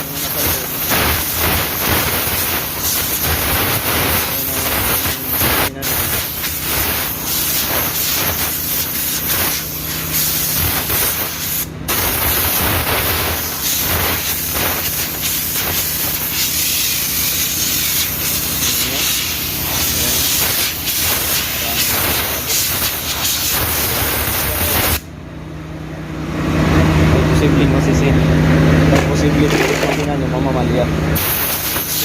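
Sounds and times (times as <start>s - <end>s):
compressed air blow gun hissing: 0.0s - 25.0s, 31.2s - 32.0s.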